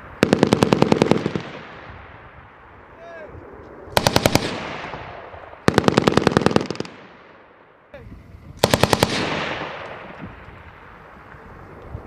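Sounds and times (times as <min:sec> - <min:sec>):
machine gun bursts echoing: 0:00.2 - 0:01.8, 0:03.9 - 0:07.3, 0:08.6 - 0:10.2.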